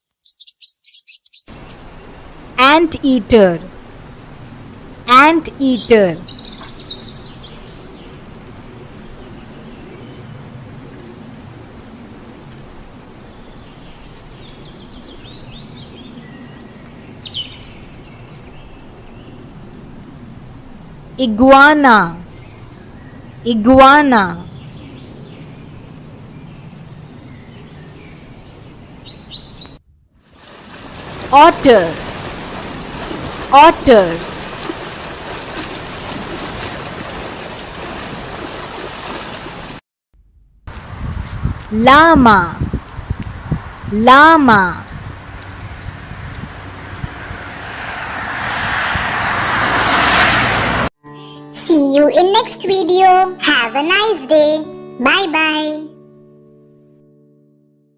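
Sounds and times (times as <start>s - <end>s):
small bird chirping: 0.0s - 1.9s
outdoor background hiss: 1.5s - 36.4s
running water rushing: 30.3s - 39.8s.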